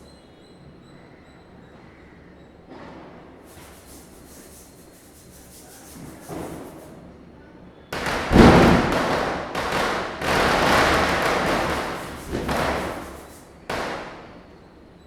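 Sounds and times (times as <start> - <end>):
firecrackers cracking: 7.9 - 14.6
firecracker bang: 8.0 - 14.6.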